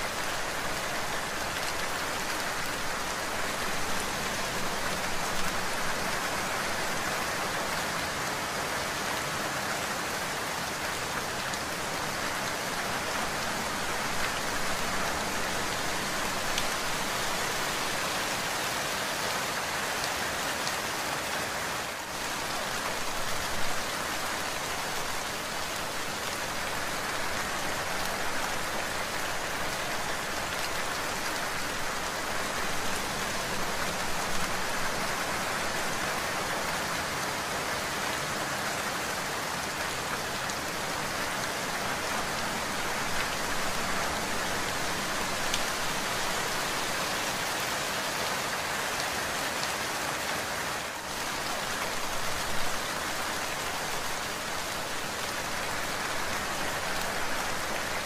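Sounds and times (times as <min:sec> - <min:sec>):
heavy rain on hard surfaces: 0:00.0 - 0:58.0.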